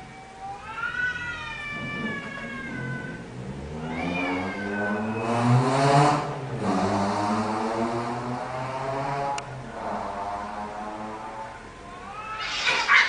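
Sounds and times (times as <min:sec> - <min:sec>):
cats yowling: 0:00.0 - 0:05.3, 0:11.8 - 0:13.0
cat hissing: 0:12.0 - 0:13.0.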